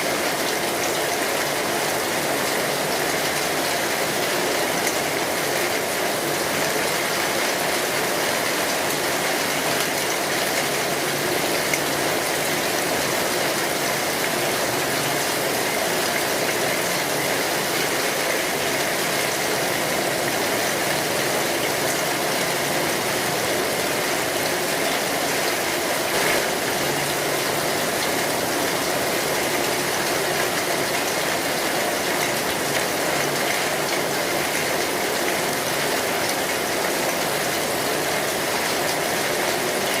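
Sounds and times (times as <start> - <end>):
heavy rain on a metal roof: 0.0 - 40.0.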